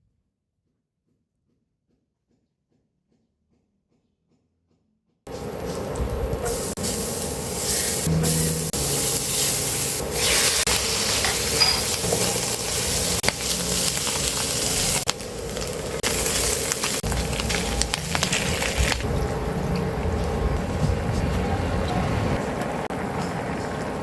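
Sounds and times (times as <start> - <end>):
food sizzling in a frying pan: 5.7 - 19.1.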